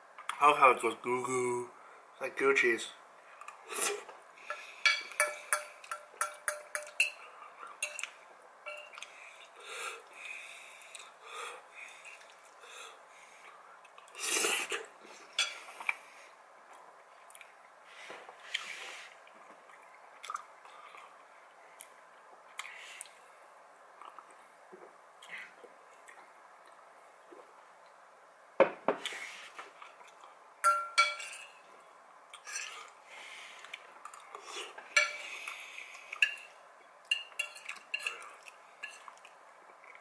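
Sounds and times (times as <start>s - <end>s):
person chewing wetly: 12.0s - 12.6s, 19.3s - 21.2s, 24.0s - 24.4s, 33.6s - 34.8s.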